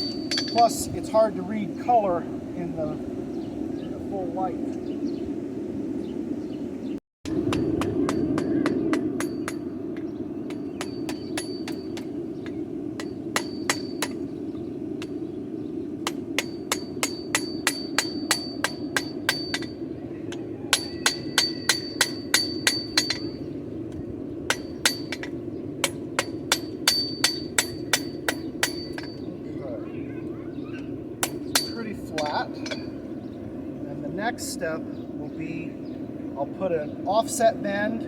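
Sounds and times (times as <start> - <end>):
hammer ringing on anvil: 0.0 - 0.7, 20.7 - 23.4, 24.5 - 29.2.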